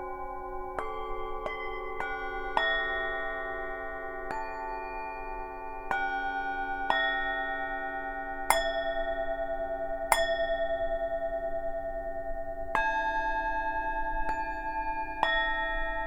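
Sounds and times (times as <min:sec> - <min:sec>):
singing bowls ringing: 0:00.0 - 0:16.0.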